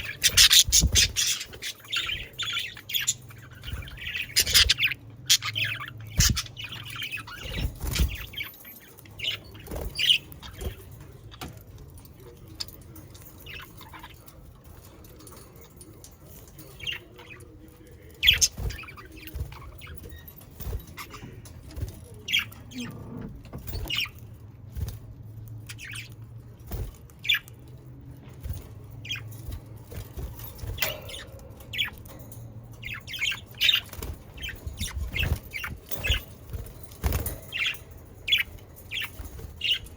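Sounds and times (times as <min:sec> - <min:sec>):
budgerigars chirping: 0:00.0 - 0:08.6.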